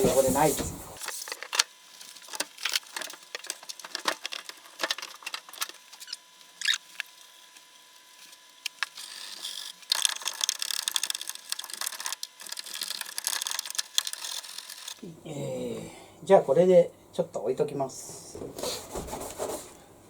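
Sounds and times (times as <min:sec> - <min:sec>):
plastic scraping and rustling: 0:00.0 - 0:15.0
plastic parts clicking and knocking: 0:01.0 - 0:07.1, 0:08.6 - 0:15.0.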